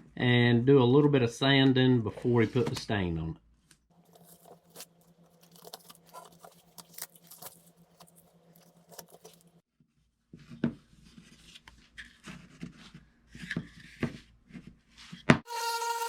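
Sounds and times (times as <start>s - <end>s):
tape peeling and tearing: 4.0s - 9.5s.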